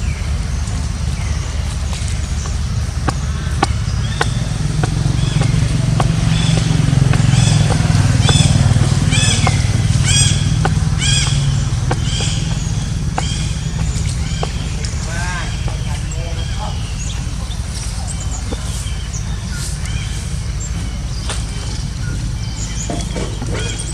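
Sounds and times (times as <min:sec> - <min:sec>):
vehicle engine hum: 0:00.0 - 0:23.9.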